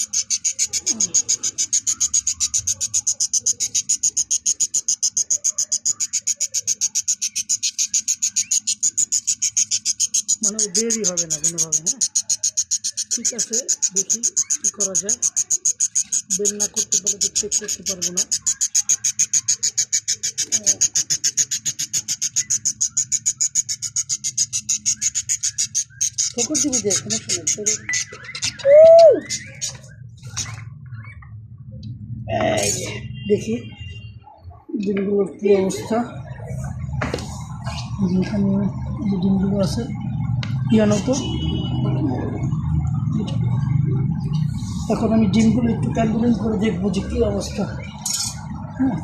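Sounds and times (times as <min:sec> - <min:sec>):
budgerigar harsh high calls: 0:00.0 - 0:31.2.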